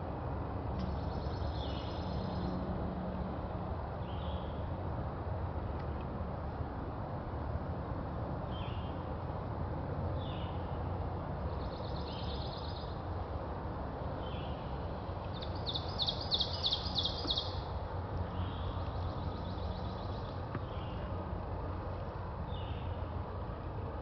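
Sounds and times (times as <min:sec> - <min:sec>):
songbirds singing: 0:00.8 - 0:02.6, 0:08.4 - 0:09.1, 0:10.2 - 0:10.8, 0:11.4 - 0:13.2, 0:14.1 - 0:21.7, 0:22.4 - 0:23.2
loud rapid bird trill: 0:15.4 - 0:17.6.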